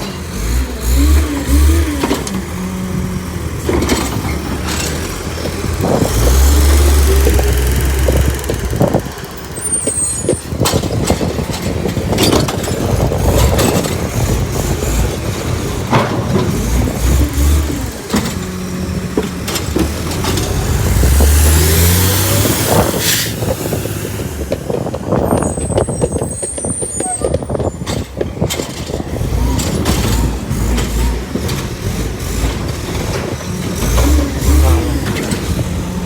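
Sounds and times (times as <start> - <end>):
recyclables clattering and banging: 0.0 - 36.0
truck engine revving: 0.0 - 36.0
short air hisses: 23.0 - 23.5.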